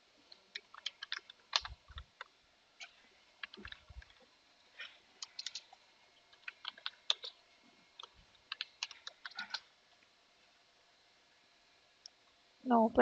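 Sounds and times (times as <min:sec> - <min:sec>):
computer keyboard typing: 0:00.3 - 0:02.3, 0:03.4 - 0:04.2, 0:05.2 - 0:07.4, 0:08.0 - 0:09.7.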